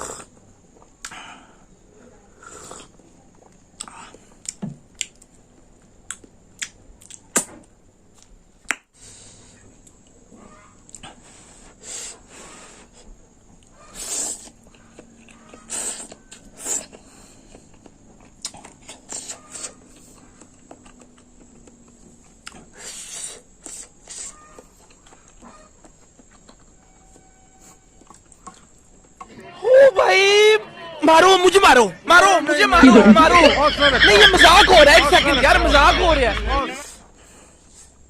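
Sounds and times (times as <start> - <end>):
chewing and mouth noises: 2.7 - 7.5, 13.5 - 29.2.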